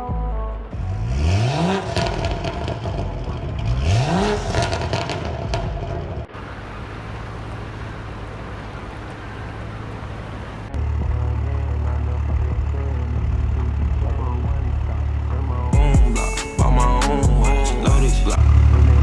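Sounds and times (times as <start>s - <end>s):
engine crackles: 0.0s - 19.0s
low engine drone: 0.0s - 19.0s
sports car engine revving: 0.6s - 19.0s.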